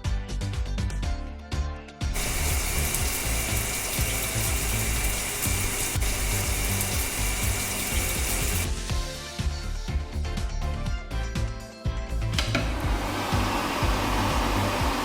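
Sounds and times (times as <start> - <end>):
background music: 0.0 - 15.0
water spray hiss: 2.2 - 8.9.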